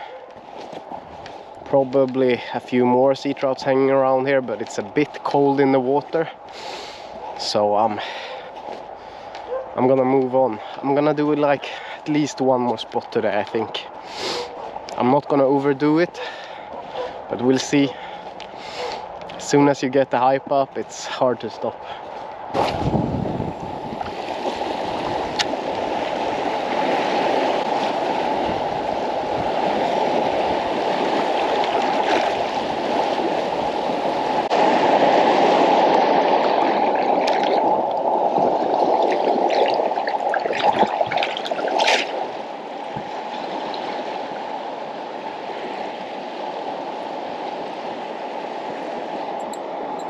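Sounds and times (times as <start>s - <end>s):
water sloshing and gurgling: 21.8s - 50.0s.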